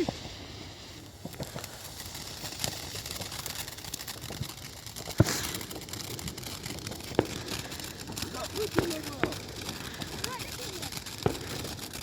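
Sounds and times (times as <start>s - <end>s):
fireworks crackles and pops: 0.0s - 12.0s
fireworks sharp bang: 5.0s - 12.0s.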